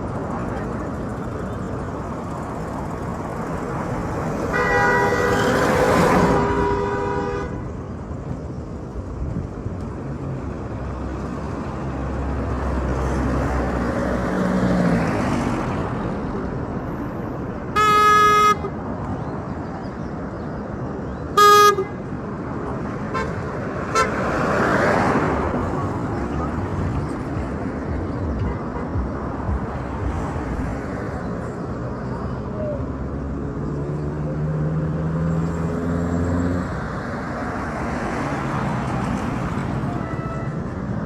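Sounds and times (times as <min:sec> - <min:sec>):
rumble of passing vehicles: 0:00.0 - 0:41.0
car horns honking: 0:04.4 - 0:07.7, 0:17.7 - 0:18.8, 0:21.3 - 0:22.1, 0:23.1 - 0:24.3, 0:39.8 - 0:40.8.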